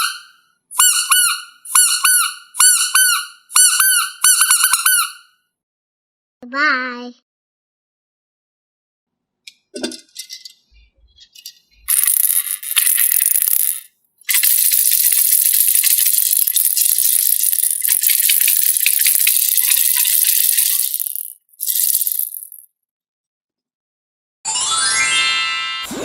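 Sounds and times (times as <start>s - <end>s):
small hard pieces rattling: 11.9s - 22.7s.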